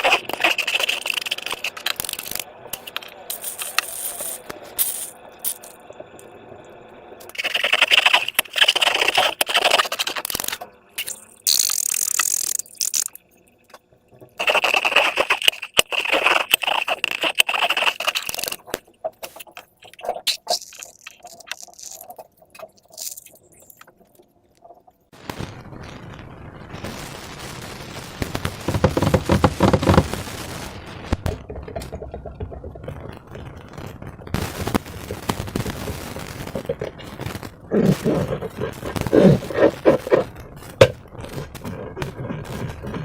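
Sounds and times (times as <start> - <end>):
slime crackling and squishing: 0.0 - 2.5, 7.3 - 10.6, 14.4 - 23.9.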